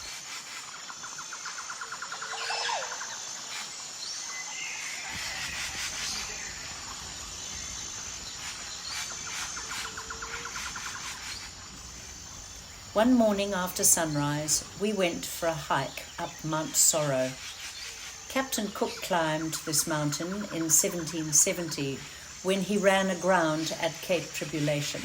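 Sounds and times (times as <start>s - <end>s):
high-pitched insect drone: 0.0s - 15.2s
birds chirping and calling: 0.5s - 23.8s.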